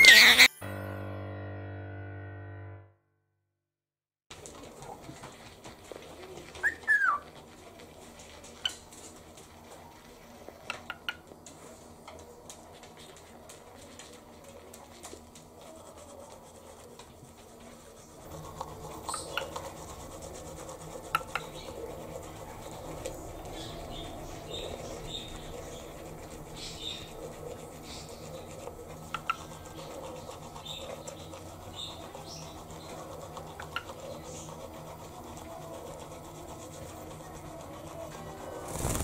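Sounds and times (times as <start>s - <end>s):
bird whistled call: 6.6s - 7.2s.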